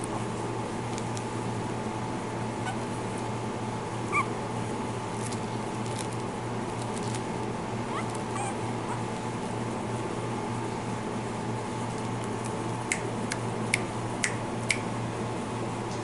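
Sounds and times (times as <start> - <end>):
steady background hum: 0.0 - 16.0
puppy squeak: 2.6 - 2.9, 4.1 - 4.3, 7.9 - 9.1.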